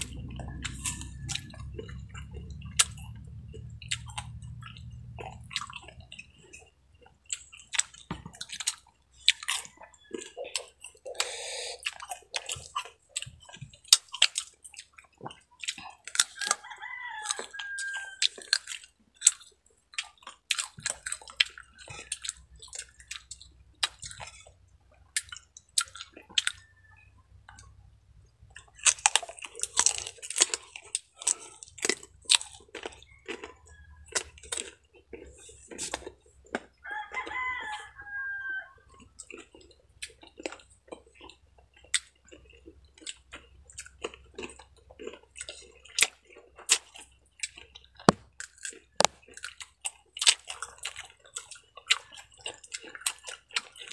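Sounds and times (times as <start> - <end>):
crunching and chewing: 0.0 - 53.9
rooster crowing: 0.2 - 2.0, 16.4 - 18.5, 32.8 - 34.7, 36.8 - 39.1.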